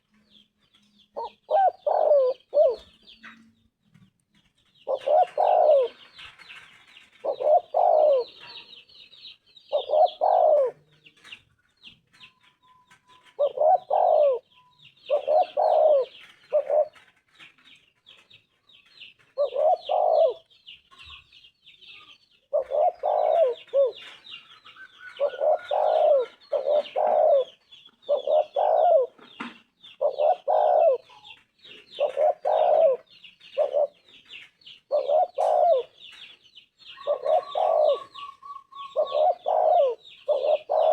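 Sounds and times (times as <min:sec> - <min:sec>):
small birds chirping: 0:00.0 - 0:40.9
dove cooing: 0:01.2 - 0:03.4, 0:04.8 - 0:08.8, 0:09.7 - 0:11.3, 0:13.2 - 0:17.2, 0:19.4 - 0:20.5, 0:22.5 - 0:40.9.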